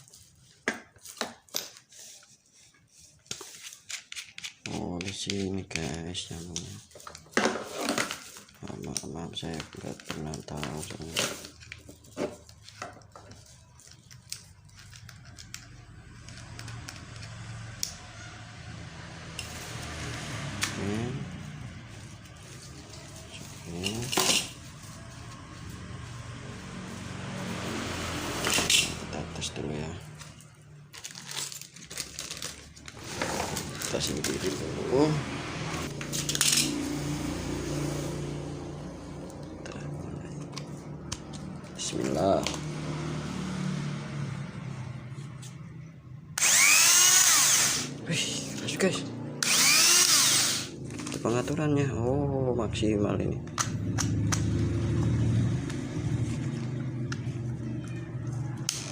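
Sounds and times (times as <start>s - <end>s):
mini grinder whine: 33.0s - 38.0s, 46.4s - 50.8s.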